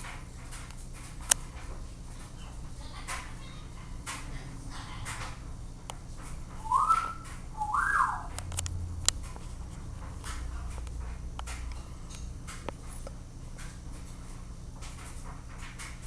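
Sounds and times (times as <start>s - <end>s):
whistled notes: 6.6s - 8.4s.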